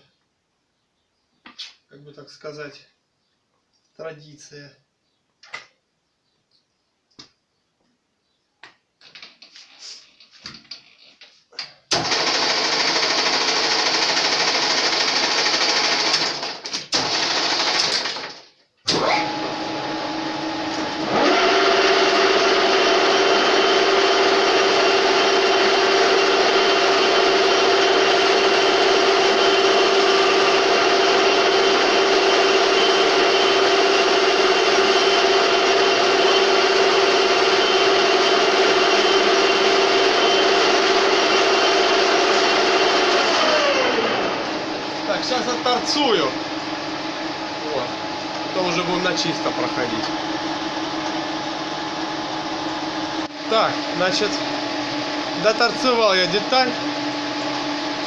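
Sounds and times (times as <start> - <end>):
lathe running with whine: 12.0 - 17.8, 19.0 - 58.0.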